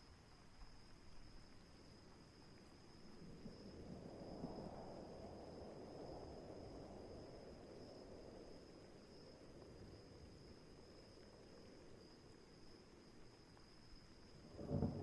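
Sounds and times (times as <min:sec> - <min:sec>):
insects chirring: 0:00.0 - 0:15.0
distant thunder rumble: 0:14.5 - 0:15.0.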